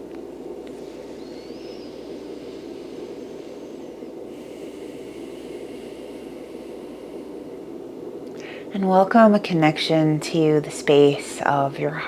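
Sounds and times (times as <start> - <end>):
soft white noise hiss: 0.0 - 12.0.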